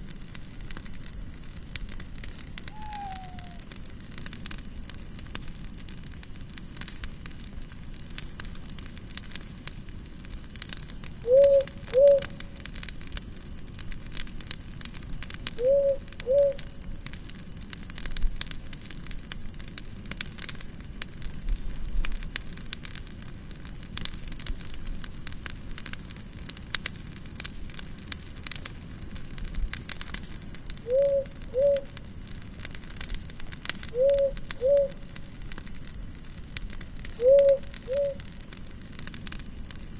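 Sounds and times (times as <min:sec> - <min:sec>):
campfire crackling and popping: 0:00.0 - 0:39.9
crickets chirping: 0:08.2 - 0:09.5, 0:21.6 - 0:21.9, 0:24.5 - 0:26.8.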